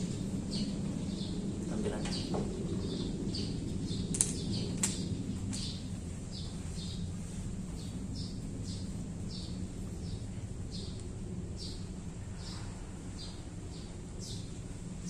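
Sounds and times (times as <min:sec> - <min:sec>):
low steady background hum: 0:00.0 - 0:15.0
sharp clicks: 0:04.1 - 0:05.6
small bird chirping: 0:07.7 - 0:11.0, 0:11.6 - 0:14.6.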